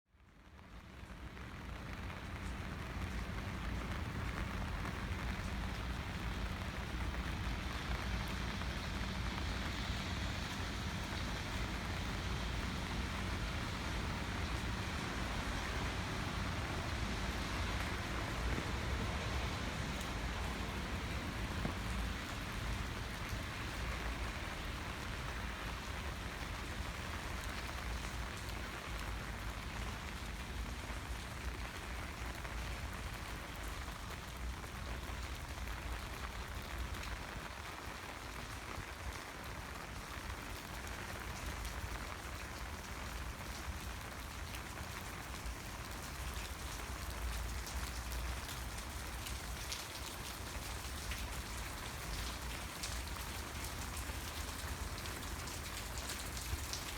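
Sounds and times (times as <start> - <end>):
rain falling: 0.1 - 56.9.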